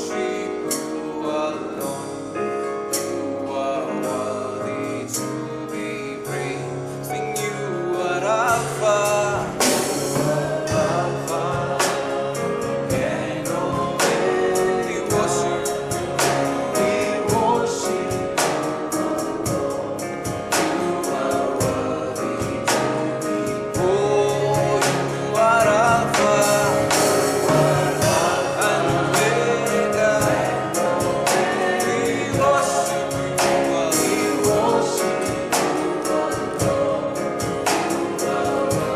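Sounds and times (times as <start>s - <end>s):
group singing: 0.0s - 38.9s
keyboard chords: 0.0s - 38.9s
steady drum beat: 7.2s - 38.9s.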